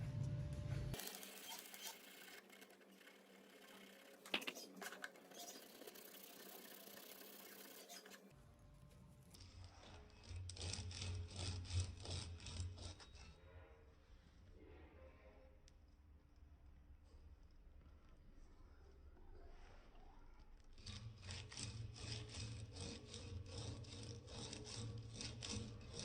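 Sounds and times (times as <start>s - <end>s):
scraping on a metal die: 20.8s - 26.0s.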